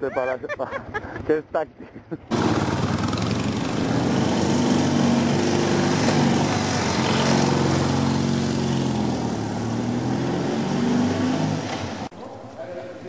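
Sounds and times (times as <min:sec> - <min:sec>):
motorcycle engine running: 0:02.3 - 0:12.1.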